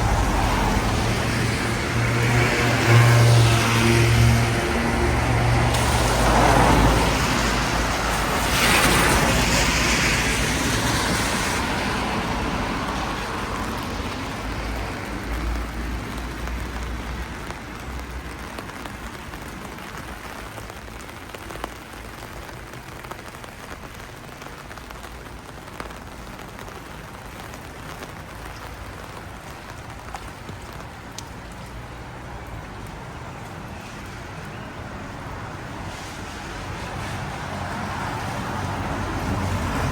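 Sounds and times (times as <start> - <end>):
car passing on wet street: 0.0 - 39.9
steady rain: 0.0 - 39.9.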